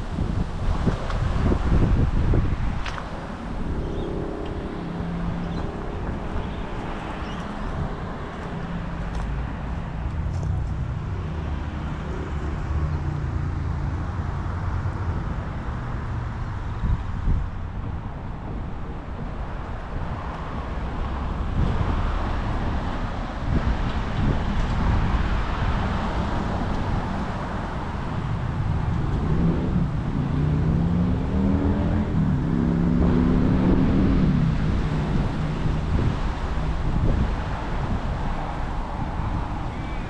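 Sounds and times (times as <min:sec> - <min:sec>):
wind on microphone: 0:00.0 - 0:12.6, 0:14.8 - 0:40.0
road rumble: 0:00.0 - 0:40.0
vehicle engine revving: 0:01.6 - 0:10.8, 0:28.5 - 0:36.1.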